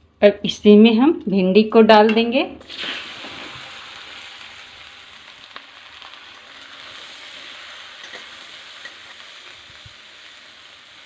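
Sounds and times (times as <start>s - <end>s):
okra sizzling in hot oil: 2.6s - 11.0s.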